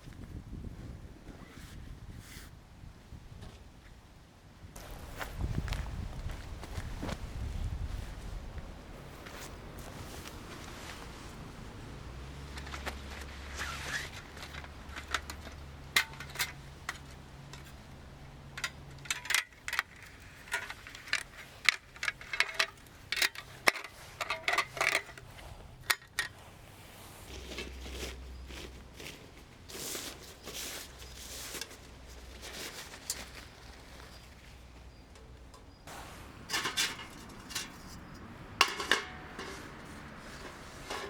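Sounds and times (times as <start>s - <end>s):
metal cookware clinking: 36.4s - 41.0s.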